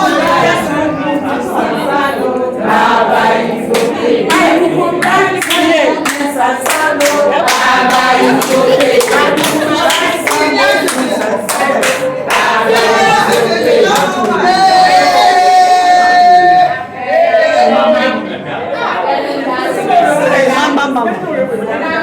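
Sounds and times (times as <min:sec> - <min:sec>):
group of people singing: 0:00.0 - 0:21.0
hand-clapping: 0:03.7 - 0:14.4.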